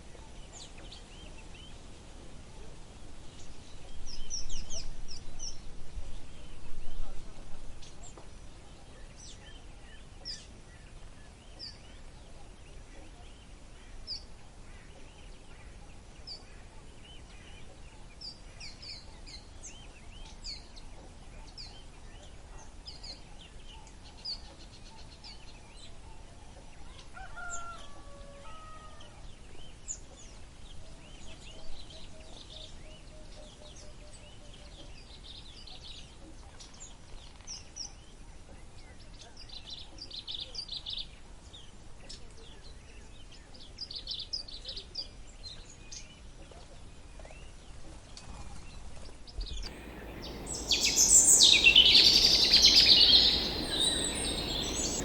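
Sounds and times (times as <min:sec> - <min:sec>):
birds chirping: 0:49.7 - 0:55.0
lower multi-tone bird call: 0:49.7 - 0:55.0
steady low background hiss: 0:49.7 - 0:55.0.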